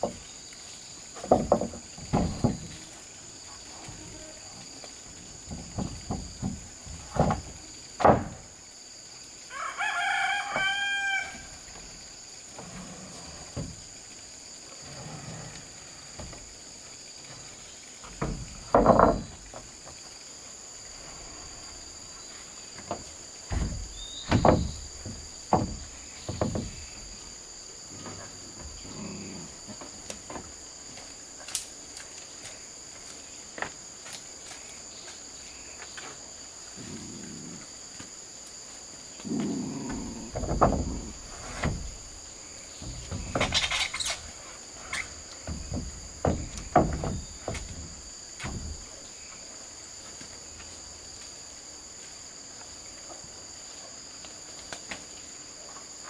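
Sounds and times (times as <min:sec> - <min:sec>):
high insect drone: 0:00.0 - 0:56.0
loud knocks and thumps: 0:01.2 - 0:02.7, 0:05.5 - 0:08.5, 0:18.1 - 0:20.0, 0:22.8 - 0:27.0, 0:40.2 - 0:44.0, 0:45.4 - 0:49.0
rooster crowing: 0:09.5 - 0:11.6.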